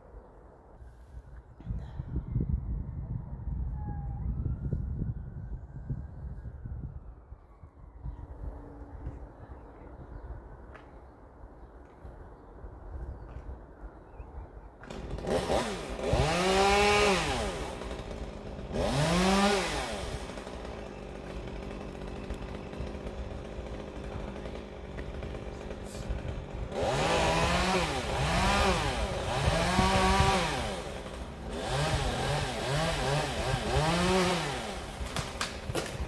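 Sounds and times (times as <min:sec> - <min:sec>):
chainsaw revving: 0:14.8 - 0:36.0.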